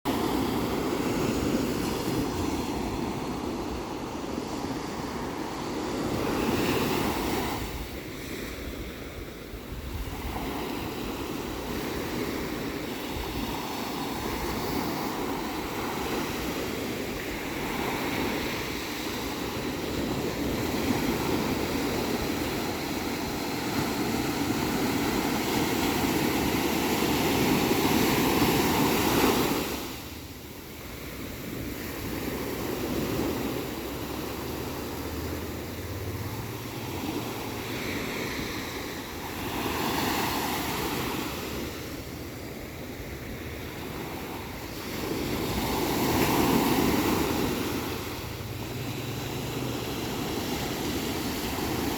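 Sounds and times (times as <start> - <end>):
ocean waves breaking: 0.1 - 51.9.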